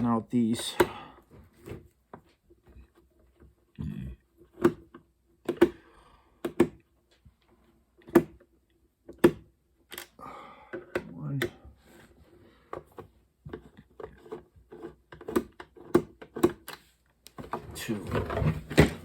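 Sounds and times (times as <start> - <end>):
sharp clicks and knocks: 4.5 - 5.8, 8.0 - 10.1.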